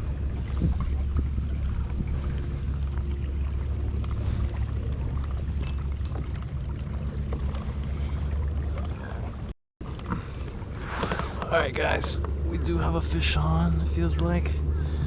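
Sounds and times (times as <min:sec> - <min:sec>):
wind noise: 0:00.0 - 0:06.2
water rumble: 0:00.0 - 0:15.0
water splashes: 0:00.0 - 0:15.0.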